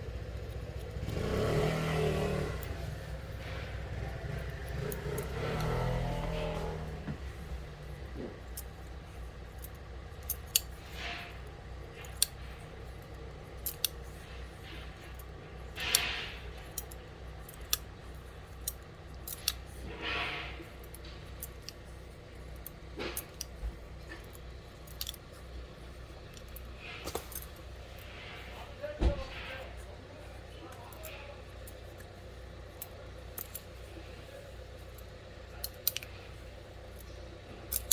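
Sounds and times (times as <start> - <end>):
scissors snipping hair: 0.0 - 25.3, 35.0 - 36.3, 36.9 - 37.9.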